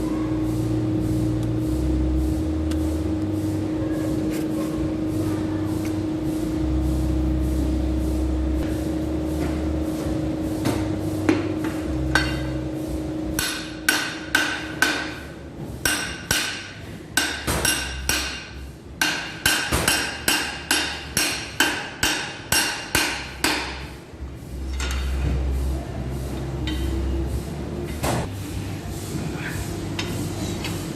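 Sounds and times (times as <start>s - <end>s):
steady hum: 0.0s - 30.9s
hammer striking metal: 12.1s - 12.6s, 13.4s - 23.9s.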